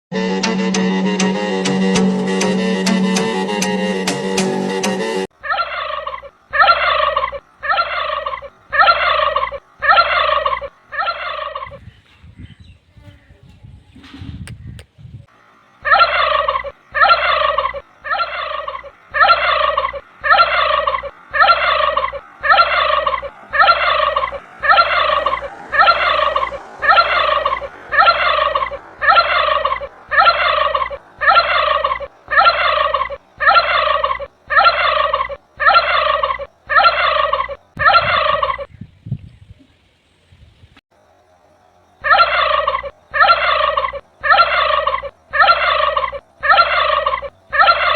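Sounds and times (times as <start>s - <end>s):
turkey gobbling: 5.3s - 11.8s, 15.8s - 38.7s, 42.0s - 47.9s
steady low hum: 15.2s - 37.9s.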